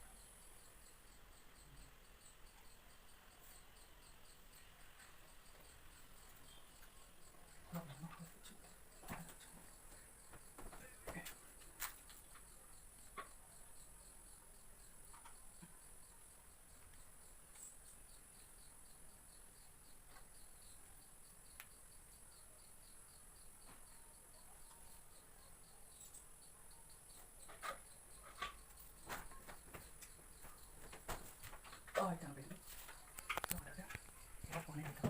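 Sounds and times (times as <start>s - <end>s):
faint insect chirping: 0.0s - 35.0s.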